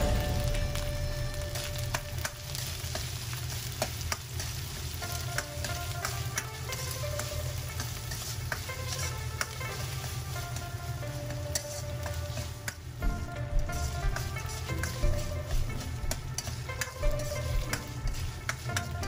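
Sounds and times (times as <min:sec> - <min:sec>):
food sizzling in a pan: 0:00.0 - 0:19.0
utensil clicking against pan: 0:01.6 - 0:19.0.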